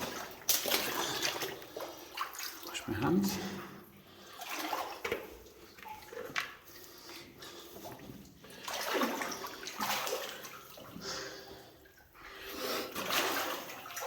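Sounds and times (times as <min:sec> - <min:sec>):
person splashing water: 0:00.0 - 0:06.3, 0:08.6 - 0:10.9, 0:12.9 - 0:14.0.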